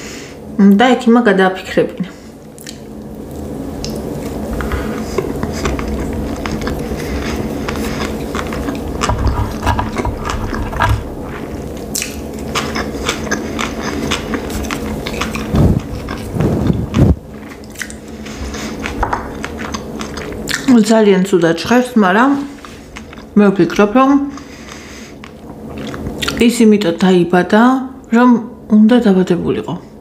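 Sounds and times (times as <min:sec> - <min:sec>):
wet chewing with clicks: 0:02.5 - 0:20.8, 0:22.6 - 0:26.4.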